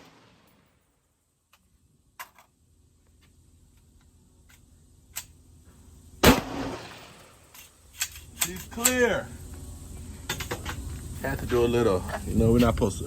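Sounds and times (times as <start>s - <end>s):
loud gunshot echoing: 6.2s - 7.2s.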